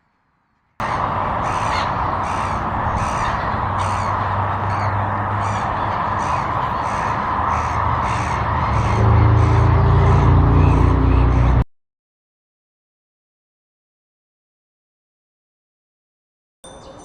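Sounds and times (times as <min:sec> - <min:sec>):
bird calling: 0:01.4 - 0:11.6.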